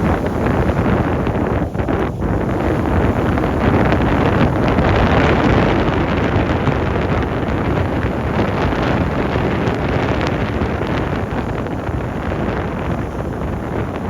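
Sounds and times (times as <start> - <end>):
strong wind on microphone: 0.0 - 14.0.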